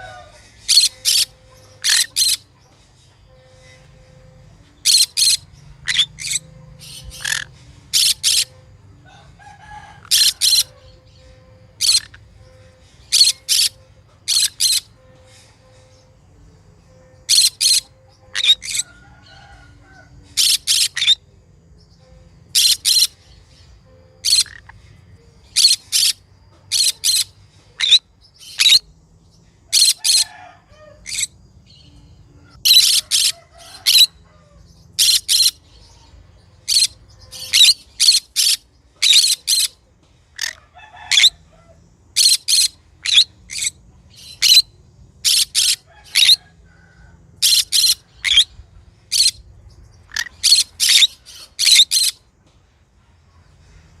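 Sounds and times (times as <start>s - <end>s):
parrot chirping: 0.0s - 2.5s, 3.4s - 15.3s, 17.2s - 19.6s, 20.4s - 21.2s, 22.5s - 23.5s, 24.2s - 24.8s, 25.4s - 28.9s, 29.7s - 31.4s, 32.5s - 34.2s, 34.9s - 35.8s, 36.6s - 39.8s, 40.4s - 41.4s, 42.1s - 46.5s, 47.4s - 49.4s, 50.0s - 52.2s.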